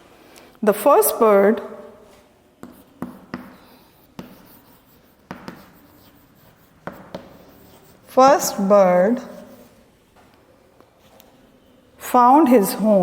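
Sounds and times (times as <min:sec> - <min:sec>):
writing tool tapping on board: 0:02.6 - 0:08.0
faint scratching strokes: 0:02.6 - 0:09.9.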